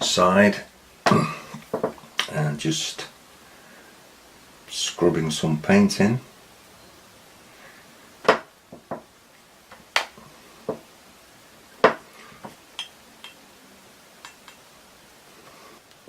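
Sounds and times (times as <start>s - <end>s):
paintbrush clinking on palette dishes: 12.8s - 13.4s.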